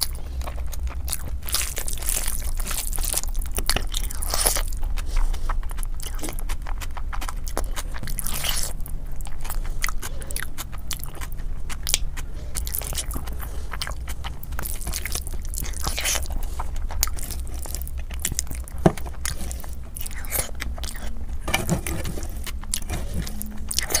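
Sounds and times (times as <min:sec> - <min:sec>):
close-miked chewing: 0:00.0 - 0:24.0
fingers scraping metal tray: 0:21.4 - 0:24.0.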